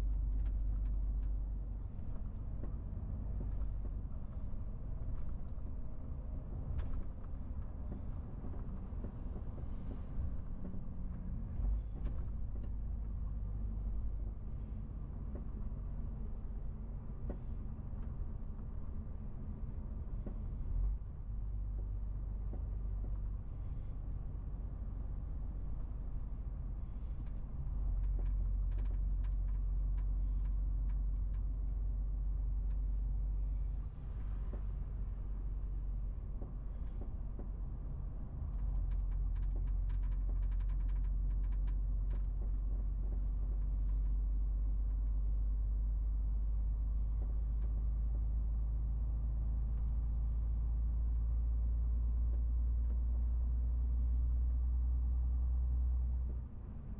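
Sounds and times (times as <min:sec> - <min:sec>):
light clicks and rattles: 0:21.6 - 0:34.9, 0:35.5 - 0:54.7.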